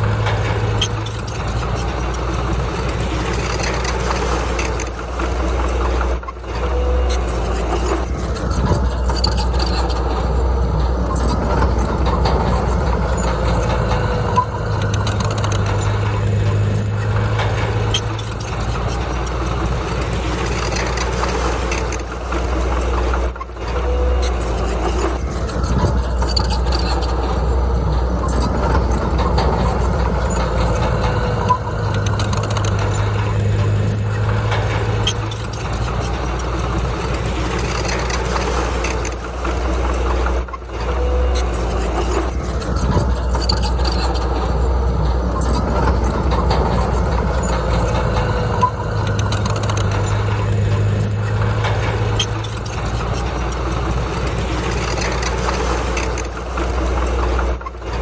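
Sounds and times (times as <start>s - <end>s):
heavy diesel machinery running: 0.0s - 58.0s.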